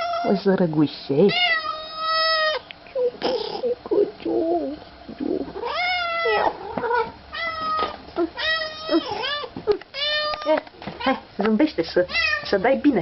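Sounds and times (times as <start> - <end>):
cat meowing: 0.0 - 0.4, 1.3 - 2.6, 5.6 - 10.6, 12.1 - 12.6.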